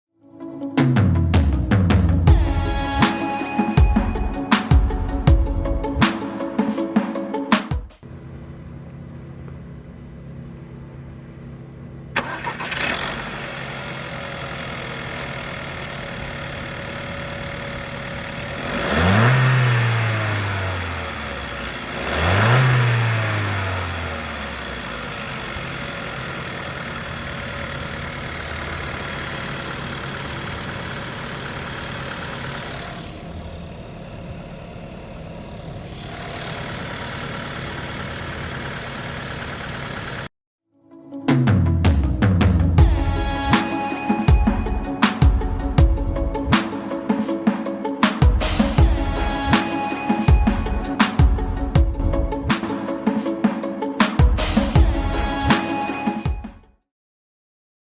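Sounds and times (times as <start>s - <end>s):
car engine starting and idling: 1.1s - 6.8s, 8.0s - 40.3s, 41.6s - 53.0s
car engine revving: 8.0s - 40.3s.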